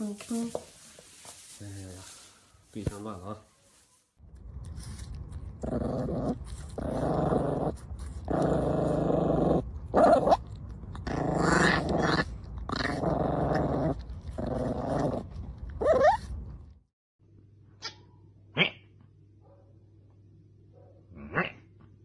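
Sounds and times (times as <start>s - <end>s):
puppy growling: 4.7s - 16.6s.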